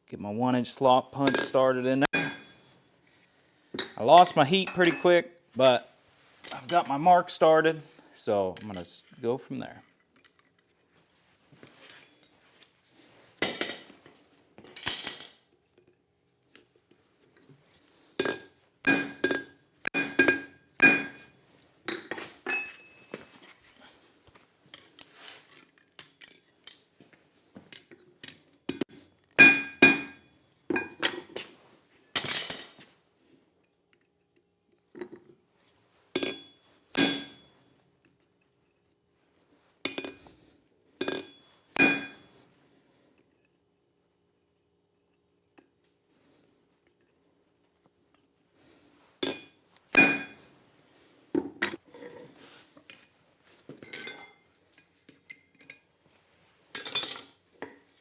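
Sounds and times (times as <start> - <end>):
hammer striking metal punch: 2.1 - 2.6, 18.2 - 21.3, 29.4 - 30.2, 37.0 - 37.4, 41.8 - 42.2, 50.0 - 50.4.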